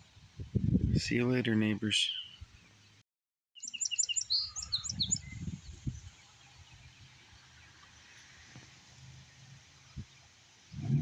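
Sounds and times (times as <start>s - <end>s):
short high bird chirps: 3.6s - 5.5s
faint outdoor ambience hiss: 3.6s - 11.0s.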